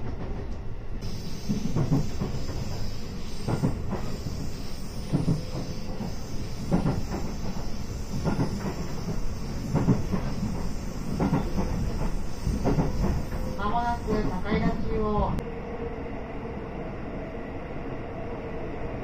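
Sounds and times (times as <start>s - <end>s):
train running rumble and hiss: 0.0s - 15.6s
wheels clacking over rail joints: 1.4s - 14.3s.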